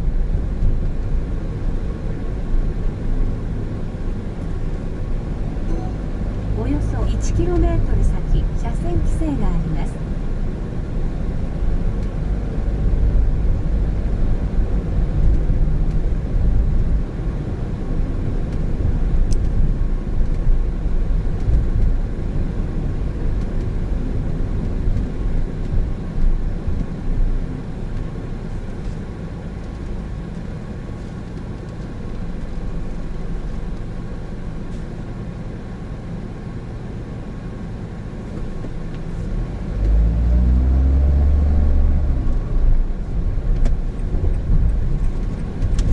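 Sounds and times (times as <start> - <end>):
road noise: 0.0 - 45.9
car engine accelerating: 38.2 - 45.9.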